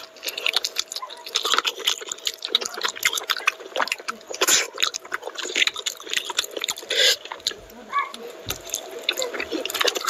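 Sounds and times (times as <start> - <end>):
wet chewing and lip-smacking: 0.0 - 10.0.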